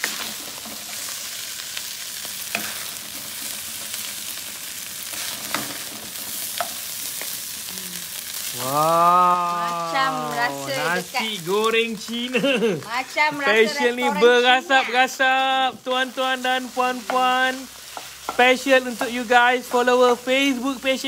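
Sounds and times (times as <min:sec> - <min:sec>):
fried rice sizzling in a wok: 0:00.0 - 0:21.0
woman's voice: 0:07.7 - 0:11.5, 0:12.8 - 0:15.1.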